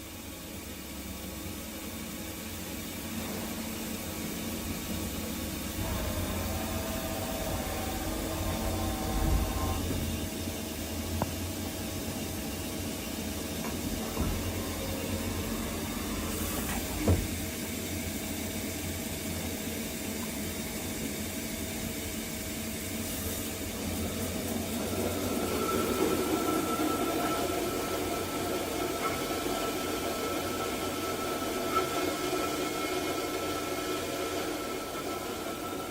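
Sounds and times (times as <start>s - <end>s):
machine low hum: 0.7s - 35.9s
motor whines: 5.7s - 10.3s.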